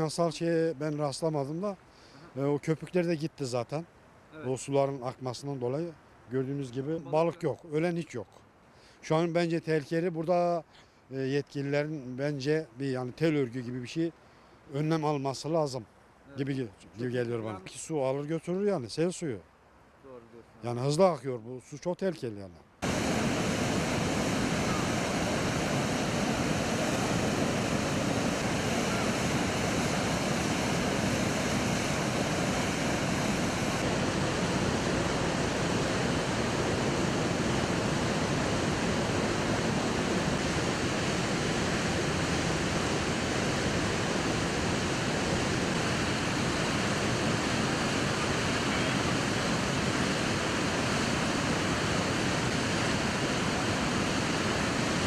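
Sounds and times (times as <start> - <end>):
floodwater rushing: 22.8 - 55.0.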